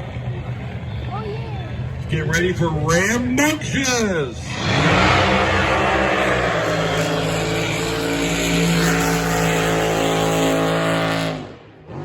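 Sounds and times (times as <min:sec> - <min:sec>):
racing boat engine at full throttle: 0:04.4 - 0:12.0.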